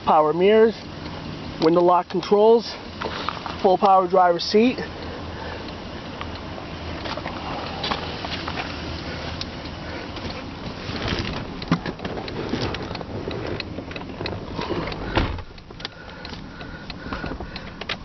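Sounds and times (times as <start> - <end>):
car engine hum: 0.0 - 18.0
loud thump: 15.1 - 15.5.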